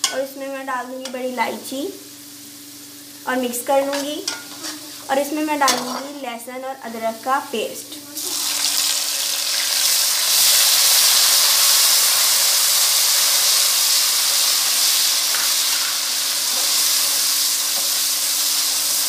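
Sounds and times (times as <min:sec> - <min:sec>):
paste sizzling in hot oil: 0:08.2 - 0:19.0.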